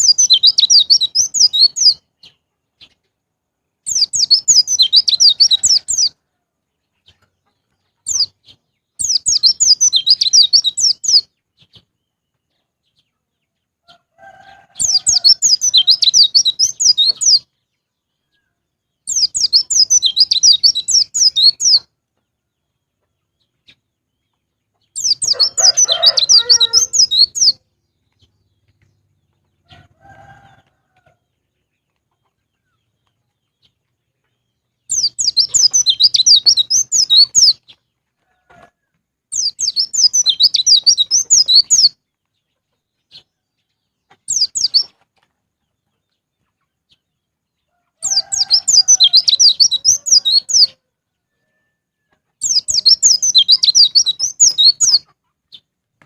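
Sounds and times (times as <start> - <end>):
bird twittering: 0.0 - 2.0, 3.9 - 6.1, 9.0 - 11.3, 19.1 - 21.8, 25.0 - 27.6, 34.9 - 37.6, 39.4 - 41.9, 44.3 - 44.9, 48.1 - 50.7, 52.4 - 55.1.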